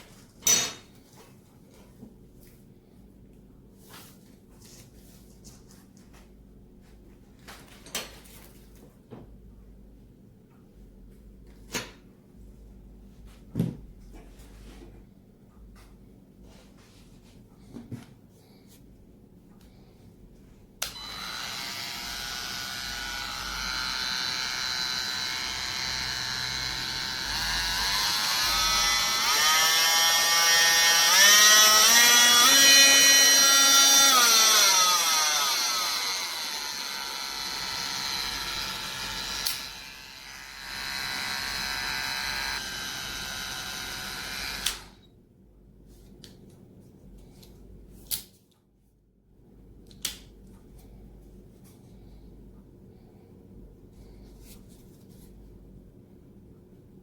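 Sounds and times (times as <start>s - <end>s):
oscillating multi-tool buzzing whine: 20.8s - 45.1s.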